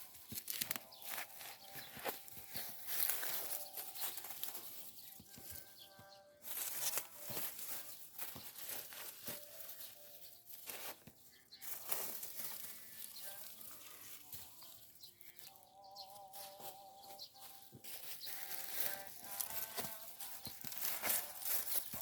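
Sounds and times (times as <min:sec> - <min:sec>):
dry foliage rustling and crinkling: 0:00.0 - 0:22.0.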